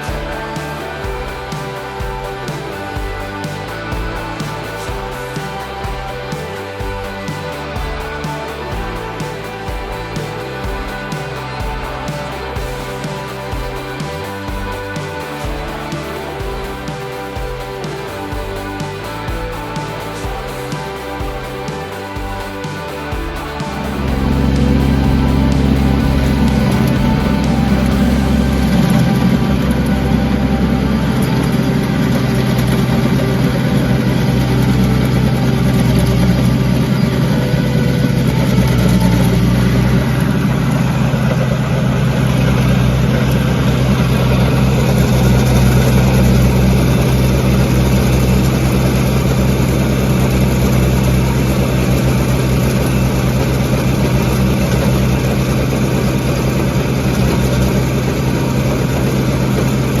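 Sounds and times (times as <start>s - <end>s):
tractor diesel engine running: 17.5s - 60.0s.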